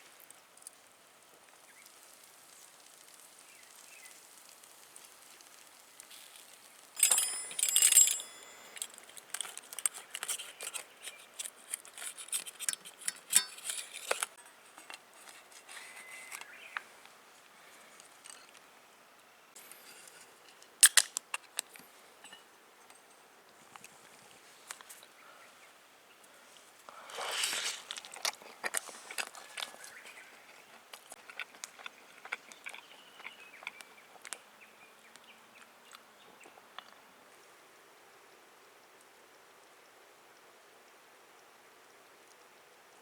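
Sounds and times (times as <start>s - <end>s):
small clicks and rustles: 0.2s - 18.7s, 19.5s - 25.2s, 26.6s - 34.4s
metallic jangle: 7.0s - 9.2s
metallic clink: 7.0s - 10.8s, 12.6s - 14.2s.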